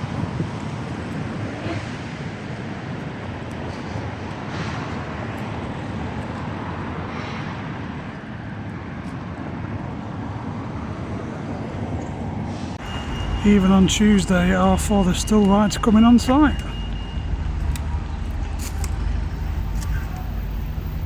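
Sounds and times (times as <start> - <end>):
wind on microphone: 0.0 - 5.2
engine noise: 12.4 - 21.0.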